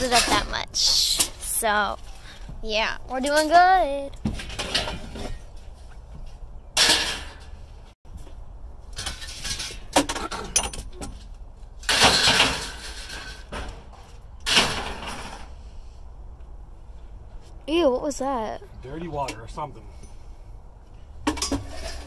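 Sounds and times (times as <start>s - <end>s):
scrap metal clattering: 4.3s - 5.9s, 11.8s - 15.6s, 21.3s - 22.0s.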